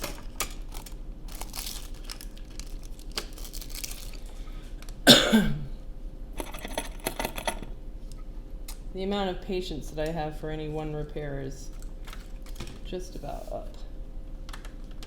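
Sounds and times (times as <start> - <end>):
small parts clicking and rustling: 0.0 - 5.0, 6.4 - 7.8.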